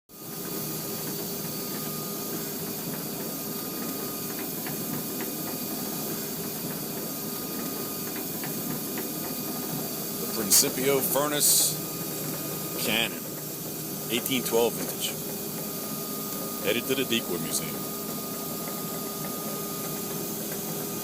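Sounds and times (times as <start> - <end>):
vehicle engine hum with hiss: 10.2 - 11.8.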